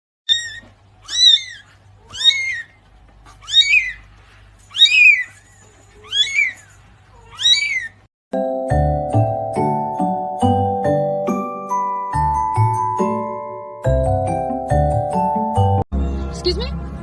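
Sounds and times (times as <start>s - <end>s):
kitten meowing: 0.3s - 2.8s, 3.4s - 4.0s, 4.7s - 5.3s, 6.0s - 6.6s, 7.2s - 8.0s
tinkling mallet-bell music: 8.4s - 15.8s.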